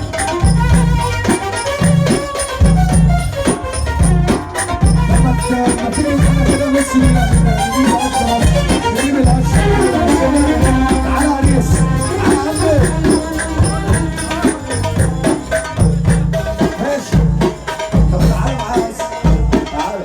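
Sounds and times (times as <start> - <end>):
dance music over sound system: 4.8 - 16.2.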